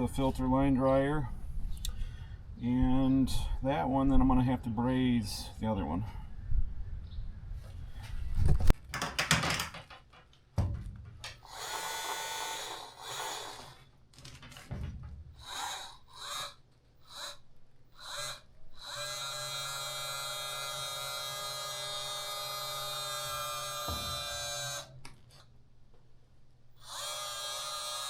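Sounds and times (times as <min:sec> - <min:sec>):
handling clatter and knocks: 0:08.5 - 0:11.4, 0:14.1 - 0:15.4
press tool motor whining: 0:11.4 - 0:13.8, 0:18.0 - 0:25.0, 0:26.8 - 0:28.0.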